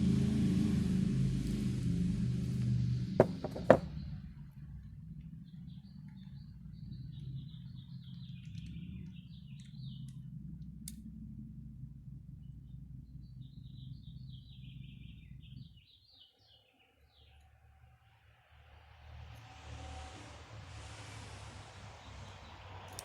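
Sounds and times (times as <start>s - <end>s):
steady low hum: 0.0s - 15.9s
small bird chirping: 4.8s - 10.9s, 12.3s - 18.2s.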